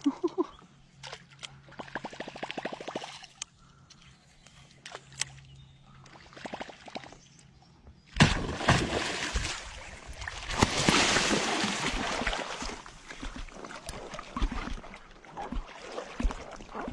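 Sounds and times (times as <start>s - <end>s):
fish thrashing and splashing water: 8.2s - 16.9s.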